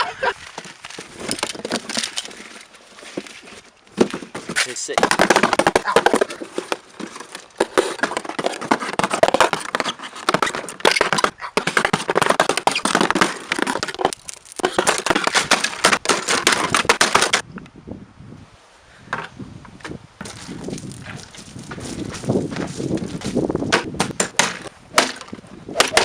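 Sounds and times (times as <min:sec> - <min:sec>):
packaging crinkling and tearing: 0:12.7 - 0:17.4.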